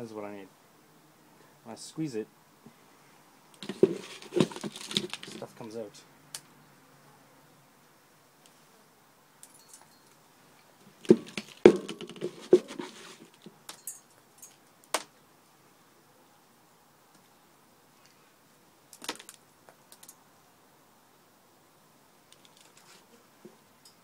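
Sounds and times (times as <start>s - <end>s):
knocks and rustles: 3.6s - 5.6s, 10.8s - 14.0s.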